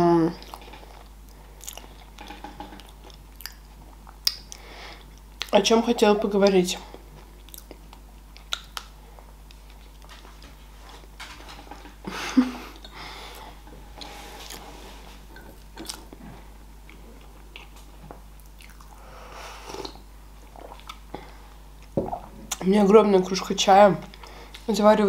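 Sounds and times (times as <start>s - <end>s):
woman chewing pastry: 0.4s - 5.6s, 6.9s - 10.1s, 12.7s - 19.1s.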